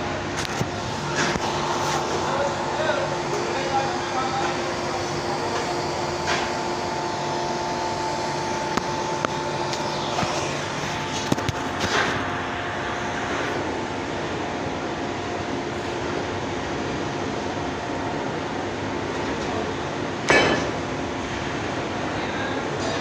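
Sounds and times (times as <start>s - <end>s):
motor hum and hiss: 0.0s - 16.3s.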